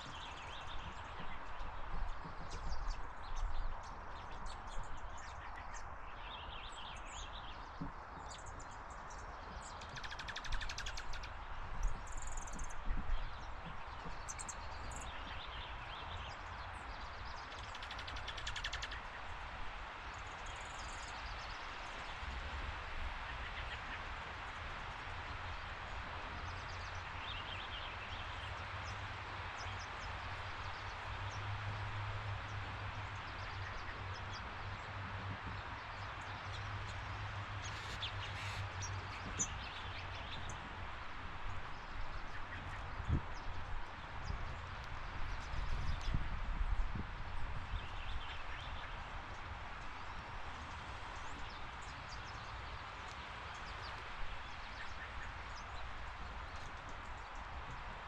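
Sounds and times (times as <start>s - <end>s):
wild birds chirping: 0.0s - 57.9s
outdoor background hiss: 35.8s - 58.0s.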